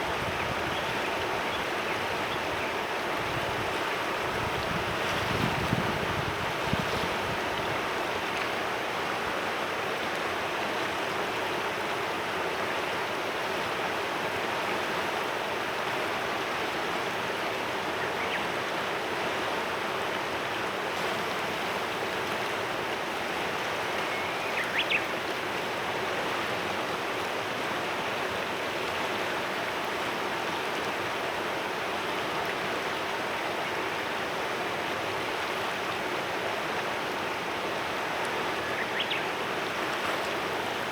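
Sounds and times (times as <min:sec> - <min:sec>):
river flowing over stones: 0:00.0 - 0:40.9
wind gust on microphone: 0:04.3 - 0:07.7
bird chirp: 0:38.7 - 0:39.3.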